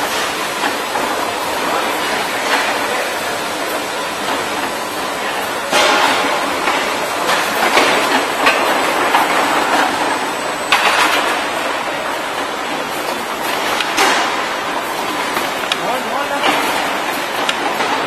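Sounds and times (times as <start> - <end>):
machinery running: 0.0 - 18.0.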